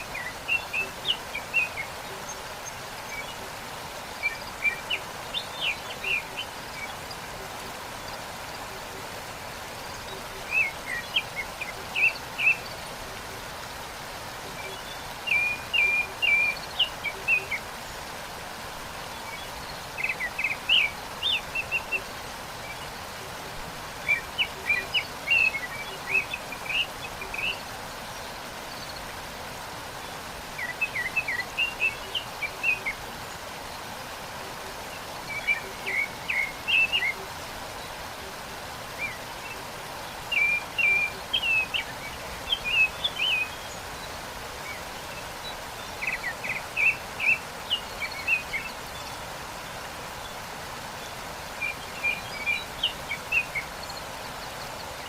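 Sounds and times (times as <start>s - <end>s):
waterfall rushing: 0.0s - 55.0s
songbird twittering: 14.5s - 17.6s, 24.0s - 27.6s, 34.9s - 37.9s, 39.0s - 49.2s.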